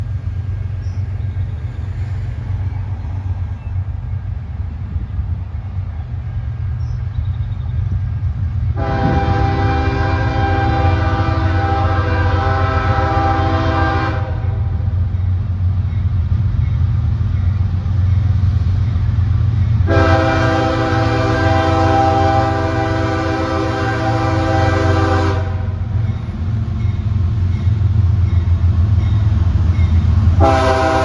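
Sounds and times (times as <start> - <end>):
freight train rumbling: 0.0 - 31.0
locomotive air horn blast: 8.8 - 14.7, 19.8 - 25.8, 30.4 - 31.0.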